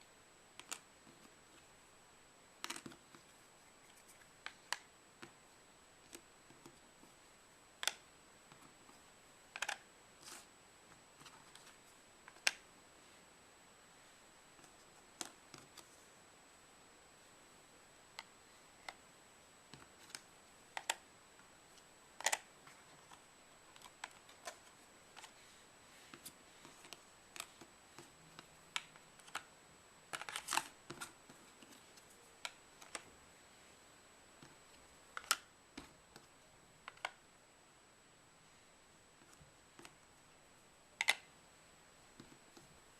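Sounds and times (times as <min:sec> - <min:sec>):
faint high-pitched whine: 0:00.0 - 0:42.9
magnetic pieces clicking: 0:35.2 - 0:35.5, 0:41.0 - 0:41.3.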